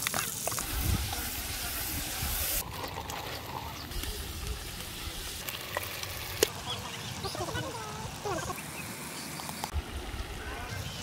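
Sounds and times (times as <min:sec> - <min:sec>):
onions sizzling in hot oil: 0:00.0 - 0:02.6.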